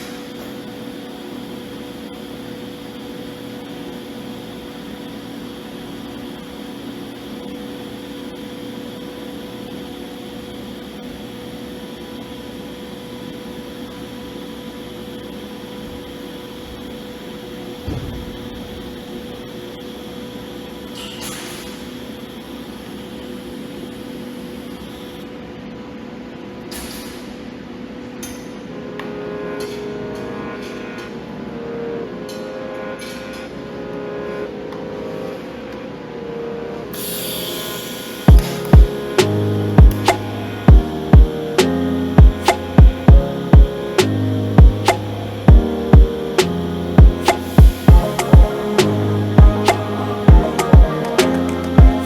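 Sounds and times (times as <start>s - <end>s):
welding arc hum and hiss: 0.0s - 32.4s, 36.9s - 52.0s
thump: 17.9s - 18.7s.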